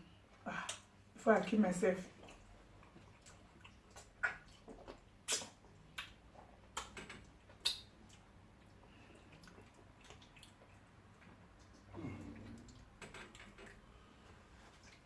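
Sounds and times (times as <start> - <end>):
wet mouth clicks and smacks: 0.6 - 0.9, 2.2 - 13.8.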